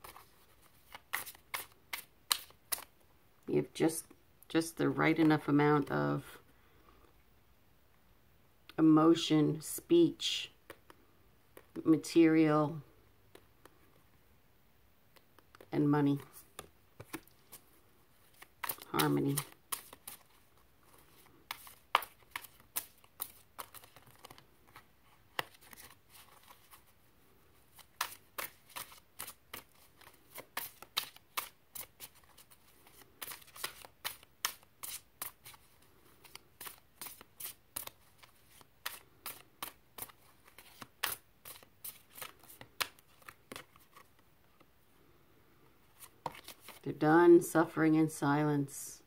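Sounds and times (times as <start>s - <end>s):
cards being shuffled: 0.0s - 3.0s, 15.1s - 27.0s, 27.6s - 44.7s, 45.9s - 46.9s.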